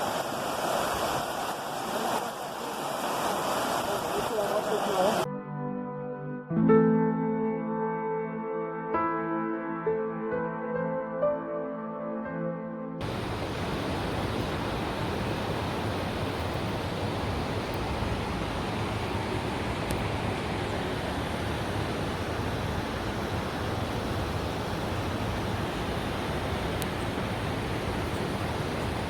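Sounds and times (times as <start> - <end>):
floodwater rushing: 0.0 - 5.3, 13.0 - 29.0.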